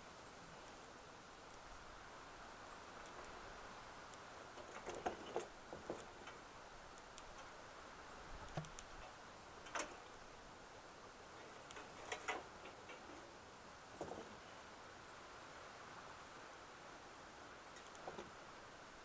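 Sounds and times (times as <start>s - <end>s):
faint steady hiss: 0.0s - 19.0s
wood clicking in a stove firebox: 4.1s - 7.6s, 11.4s - 13.2s.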